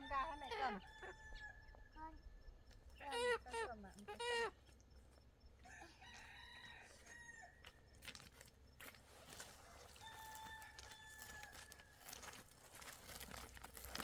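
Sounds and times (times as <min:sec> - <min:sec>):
faint rooster crowing: 0:00.0 - 0:02.4, 0:05.6 - 0:07.8, 0:09.5 - 0:12.3.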